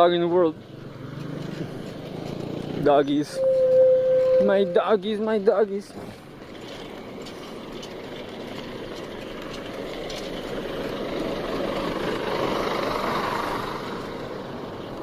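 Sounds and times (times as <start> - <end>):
vehicle passing: 0.0 - 5.1, 6.0 - 15.0.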